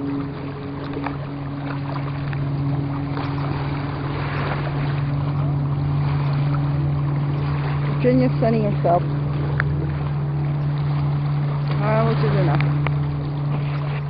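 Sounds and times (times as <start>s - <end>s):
steady low hum: 0.0s - 14.0s
faint clicks: 9.5s - 9.8s, 12.5s - 13.0s.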